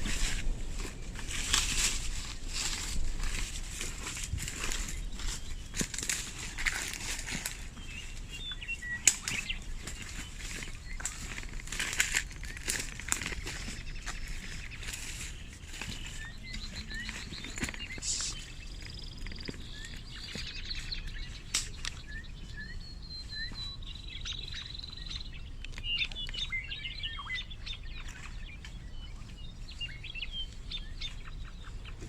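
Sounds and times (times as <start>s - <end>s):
steady low rumble: 0.0s - 32.0s
wild birds chirping: 0.0s - 32.0s
high bird whistle: 16.8s - 18.5s.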